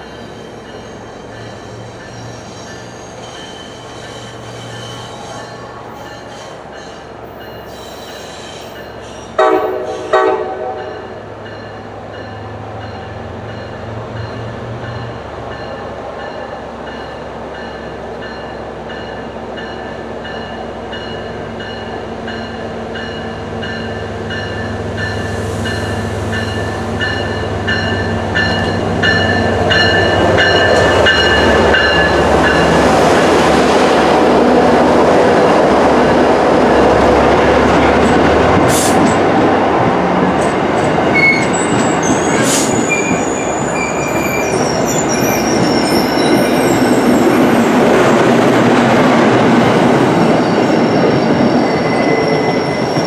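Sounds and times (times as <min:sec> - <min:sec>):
train bell ringing: 0:00.0 - 0:10.2, 0:10.8 - 0:33.5
train rumble: 0:00.0 - 0:53.0
wheel squeal: 0:00.1 - 0:09.4, 0:41.1 - 0:47.4.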